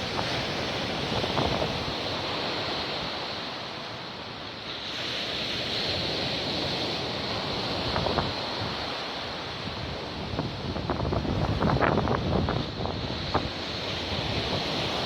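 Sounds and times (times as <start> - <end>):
wind on microphone: 0.0 - 3.3, 5.8 - 15.0
sea surf breaking on shore: 0.0 - 15.0.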